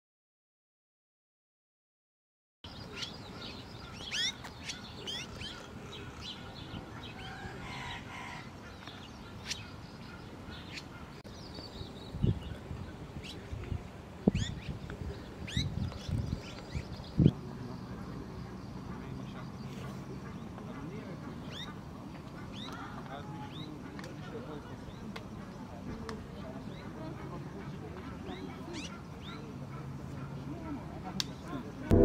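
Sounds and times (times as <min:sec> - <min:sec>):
small birds chirping: 0:02.6 - 0:31.8.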